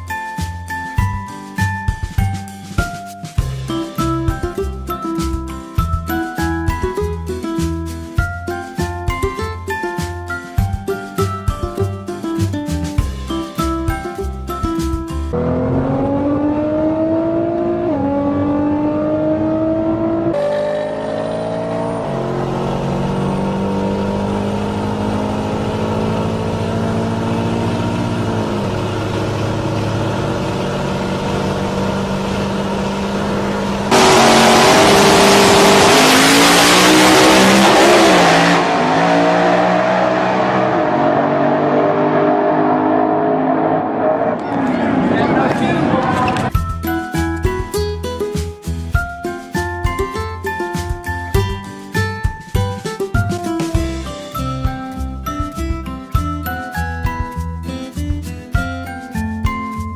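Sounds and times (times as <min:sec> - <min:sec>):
car engine accelerating through gears: 0:15.3 - 0:46.5.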